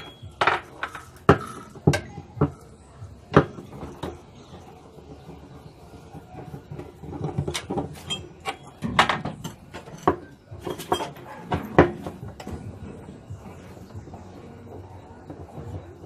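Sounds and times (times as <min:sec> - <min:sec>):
metal parts and tools clinking: 0:00.0 - 0:02.1, 0:07.1 - 0:12.6.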